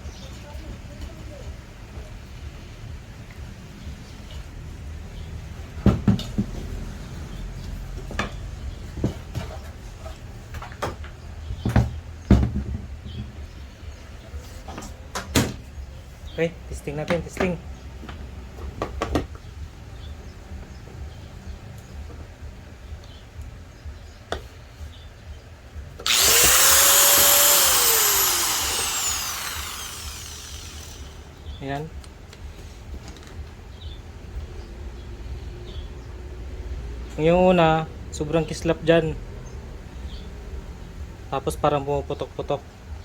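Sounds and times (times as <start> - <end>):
angle grinder whining: 26.0 - 31.3.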